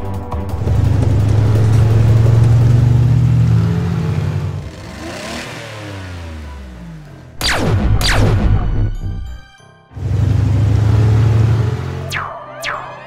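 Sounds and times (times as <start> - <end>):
cartoon truck engine: 0.5 - 12.3
sudden loud sound: 7.4 - 9.4
rising and falling pitch sweep: 10.0 - 13.0.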